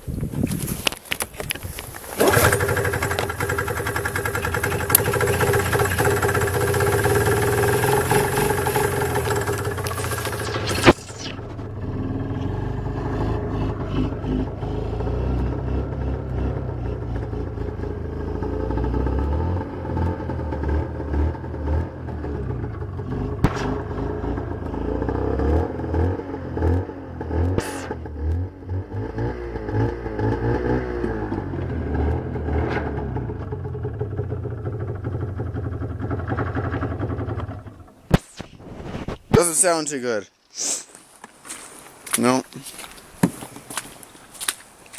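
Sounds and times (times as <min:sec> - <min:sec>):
sharp engine clacks: 0:02.0 - 0:11.4
snowmobile engine running rough: 0:02.0 - 0:26.2, 0:31.2 - 0:37.9.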